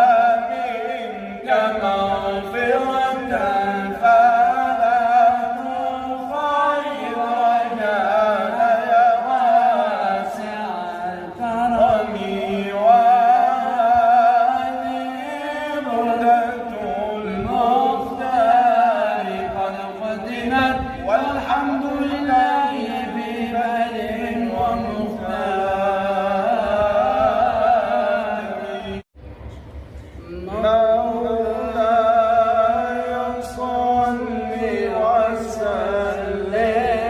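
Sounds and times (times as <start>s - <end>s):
man chanting devotional song: 0.0s - 29.1s, 30.2s - 37.0s.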